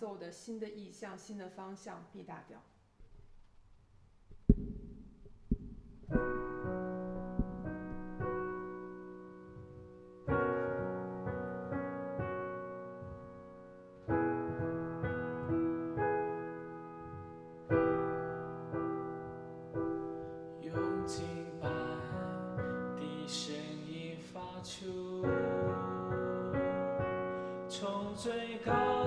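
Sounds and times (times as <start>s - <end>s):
soft thumps: 4.2s - 18.1s
sharp knock: 4.3s - 8.8s
piano chords: 4.5s - 29.0s.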